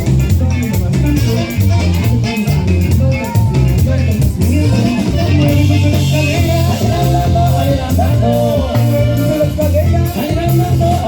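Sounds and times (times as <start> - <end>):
live cumbia band instrumental: 0.0 - 11.0.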